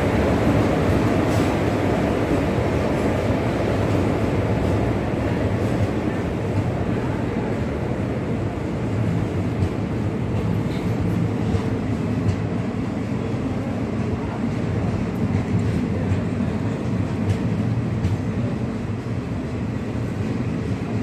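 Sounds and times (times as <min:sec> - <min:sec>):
wheels rumbling on rail: 0:00.0 - 0:21.0.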